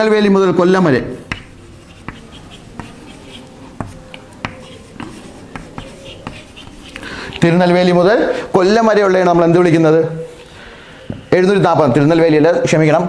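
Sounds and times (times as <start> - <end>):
writing tip tapping: 1.2 - 7.4
pen scratching on paper: 1.2 - 7.7.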